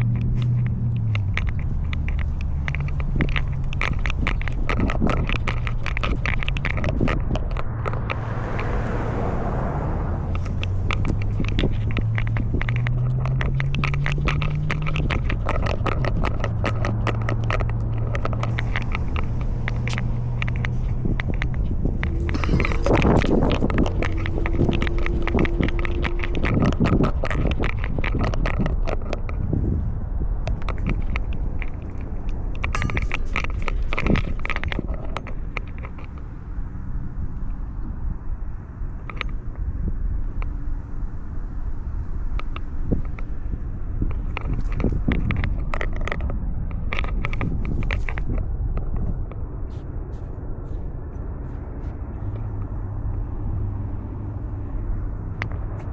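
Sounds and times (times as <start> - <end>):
collar camera clicks and scrapes: 0.0 - 9.2, 10.2 - 37.9, 38.8 - 55.9
steady low hum: 0.0 - 28.4
low rumble: 4.6 - 14.7, 15.7 - 28.5.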